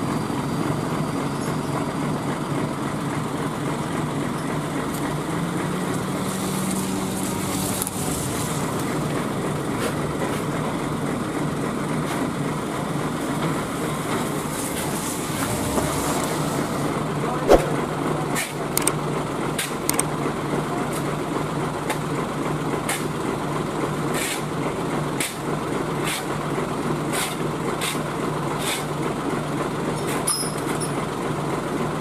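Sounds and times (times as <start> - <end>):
engine running steadily: 0.0 - 32.0.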